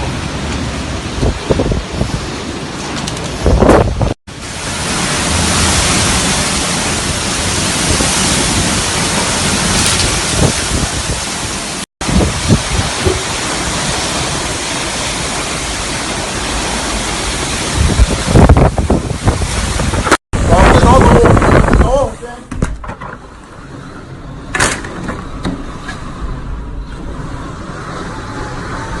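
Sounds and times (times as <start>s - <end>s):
heavy rain: 0.0s - 22.4s, 25.7s - 29.0s
wind gusts buffeting microphone: 0.0s - 22.7s.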